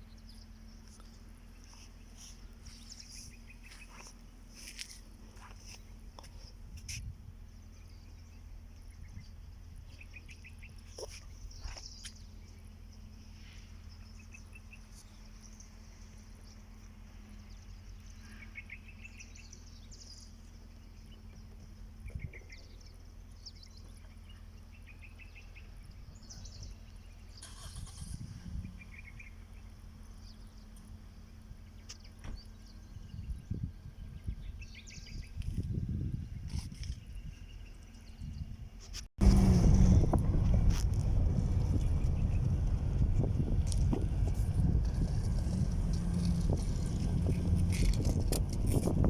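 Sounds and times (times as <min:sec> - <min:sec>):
small birds chirping: 0:00.0 - 0:38.7
steady low hum: 0:28.1 - 0:49.0.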